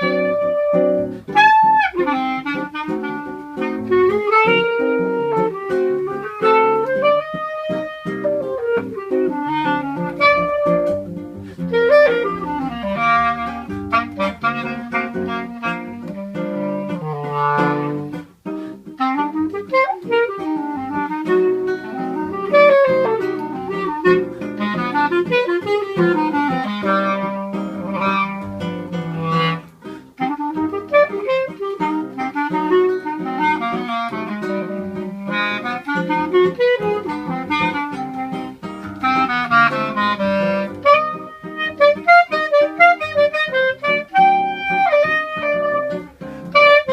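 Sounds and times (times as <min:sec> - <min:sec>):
clarinet melody: 0:00.0 - 0:46.9
guitar plucking chords and bass: 0:02.5 - 0:19.5.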